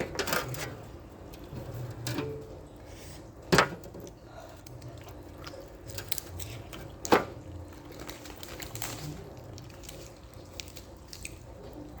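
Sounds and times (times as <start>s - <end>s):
wet chewing: 4.0s - 12.0s.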